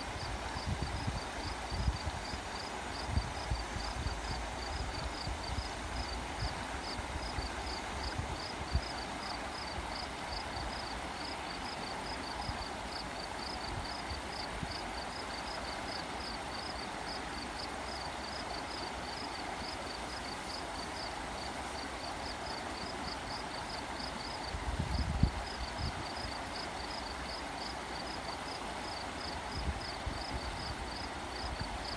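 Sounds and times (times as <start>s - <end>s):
wind on microphone: 0.0s - 8.9s, 24.5s - 26.0s
flowing water rushing: 0.0s - 31.9s.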